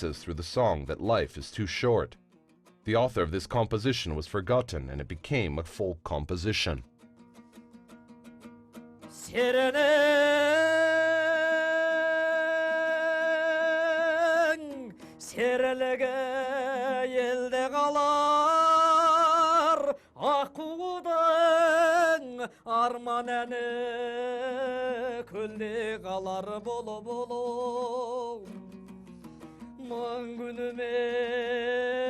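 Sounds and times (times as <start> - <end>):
man singing with vibrato: 9.1 - 32.0.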